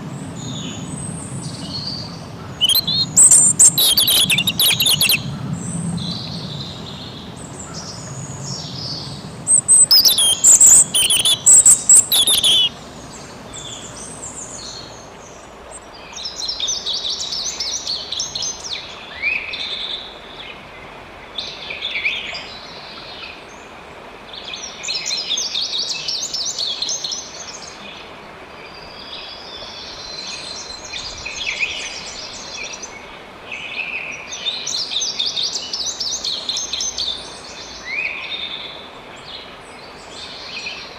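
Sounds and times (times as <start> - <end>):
songbirds singing and chirping: 0.0 - 20.6
running water rushing: 0.0 - 40.9.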